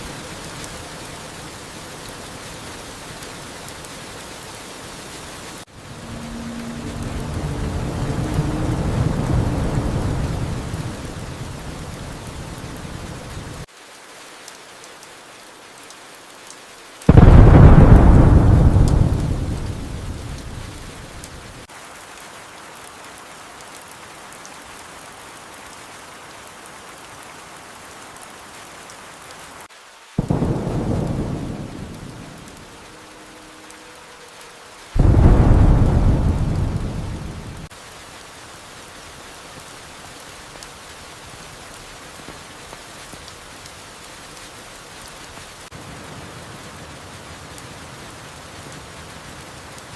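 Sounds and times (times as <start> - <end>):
steady rain: 0.0 - 49.9
thunder rumbling: 5.7 - 13.6, 17.1 - 21.7, 30.2 - 33.2, 35.0 - 37.7.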